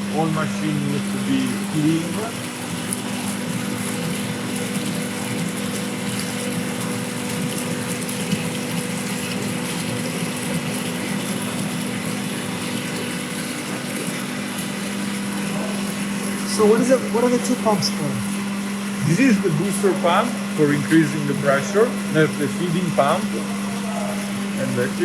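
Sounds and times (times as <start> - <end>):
machinery hum: 0.0 - 4.6, 15.3 - 25.0.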